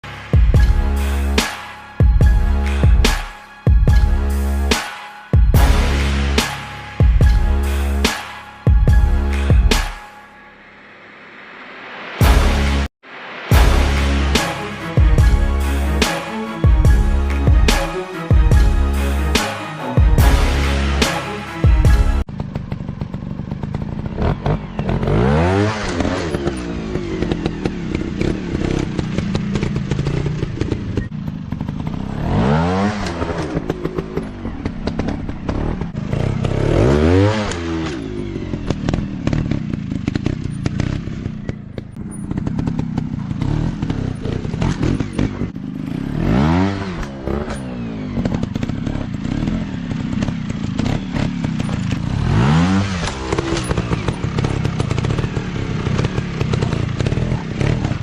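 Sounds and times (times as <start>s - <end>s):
dirt bike engines revving: 22.8s - 58.0s.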